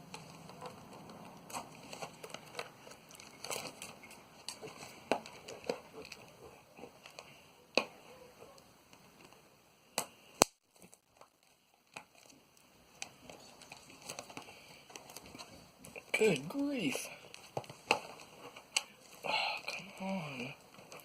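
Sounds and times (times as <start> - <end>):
plastic shrink-wrap crinkling: 0.1 - 6.3, 10.6 - 21.0.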